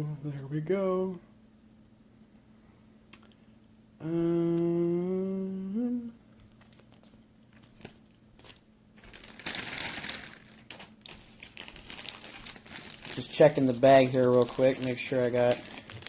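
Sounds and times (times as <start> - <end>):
man humming: 4.0 - 6.2
plastic bag crinkling: 6.6 - 16.0.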